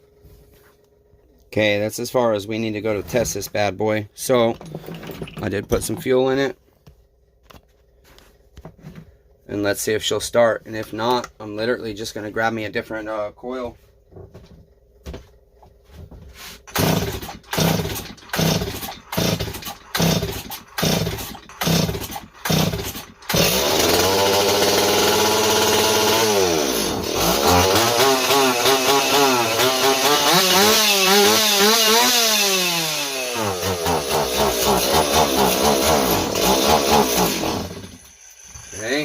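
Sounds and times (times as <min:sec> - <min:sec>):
chainsaw engine running: 0:16.7 - 0:39.0
chainsaw pull cord: 0:16.7 - 0:39.0.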